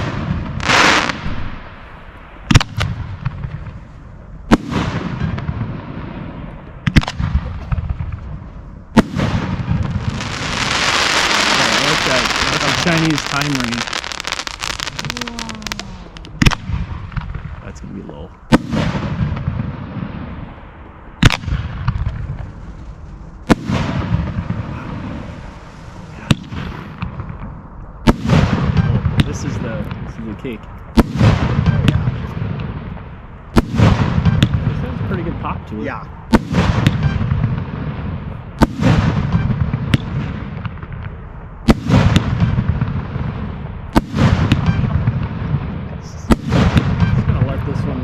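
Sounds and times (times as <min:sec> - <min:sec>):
low rolling rumble: 0:00.0 - 0:38.6
fireworks bangs: 0:00.0 - 0:48.0
small firework pops: 0:09.0 - 0:17.5, 0:38.6 - 0:43.0.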